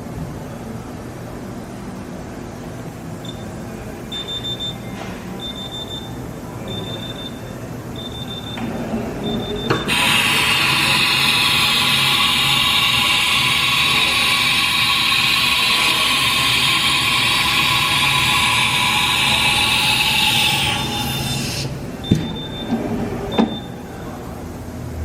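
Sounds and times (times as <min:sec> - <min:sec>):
milling machine running: 0:09.8 - 0:23.6.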